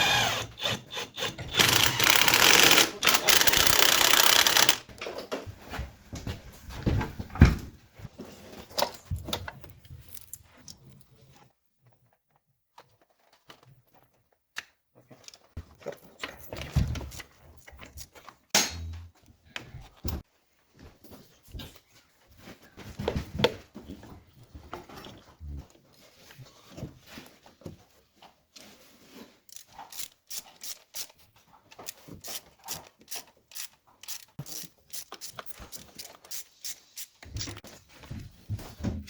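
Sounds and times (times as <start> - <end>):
hand tools and metal parts clicking: 0.0 - 5.2, 29.2 - 37.8.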